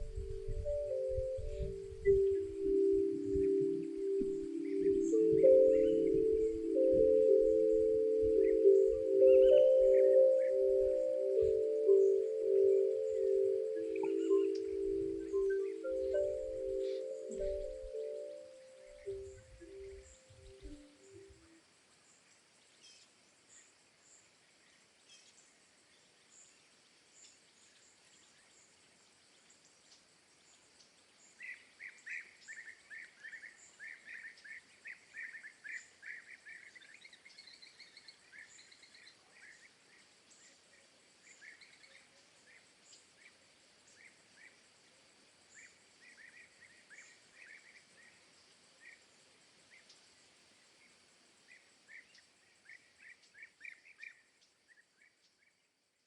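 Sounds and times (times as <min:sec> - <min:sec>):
bird chirping: 0:00.0 - 0:21.6
steady hiss: 0:00.0 - 0:35.7, 0:36.4 - 0:53.6.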